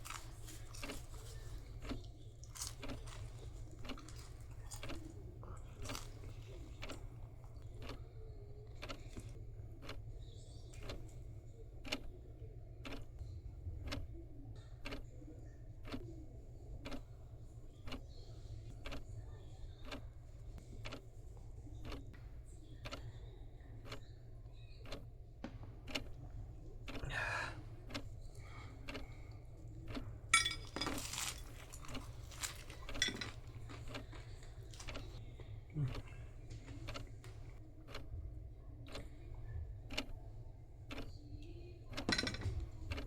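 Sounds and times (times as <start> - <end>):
soft ticking: 16.8 - 30.6, 38.8 - 40.2, 40.9 - 43.0.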